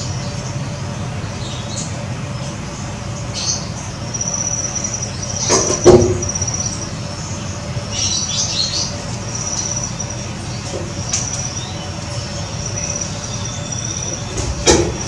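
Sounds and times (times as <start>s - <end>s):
small birds chirping: 0.0s - 15.0s
steady low hum: 0.0s - 15.0s
loud sharp knock: 5.5s - 6.3s.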